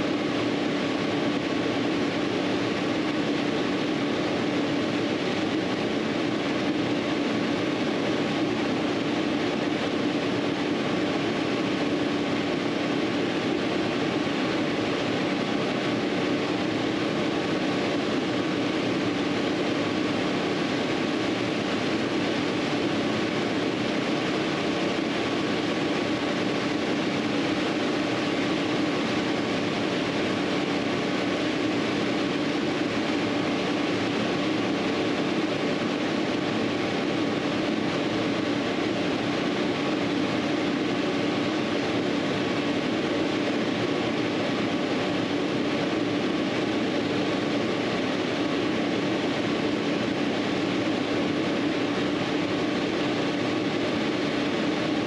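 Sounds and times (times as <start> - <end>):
mechanical hum with hiss: 0.0 - 55.0.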